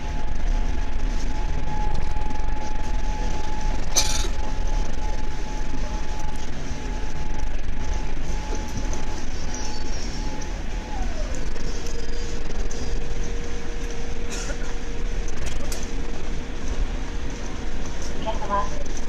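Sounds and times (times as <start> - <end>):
low cabin rumble: 0.0 - 19.0
steady whine: 0.0 - 19.0.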